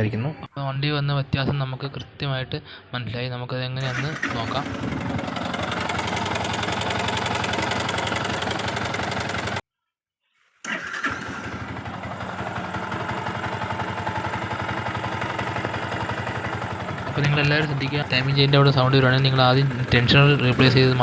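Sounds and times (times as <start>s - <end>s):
motorcycle engine idling: 3.8s - 9.6s, 11.0s - 21.0s.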